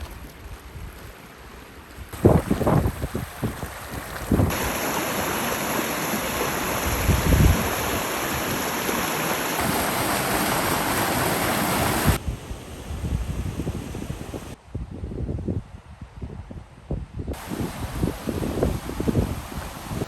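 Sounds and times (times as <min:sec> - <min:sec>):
stream water rushing: 0:01.4 - 0:14.6, 0:17.4 - 0:20.0
wind buffeting microphone: 0:02.0 - 0:08.9, 0:09.6 - 0:20.0.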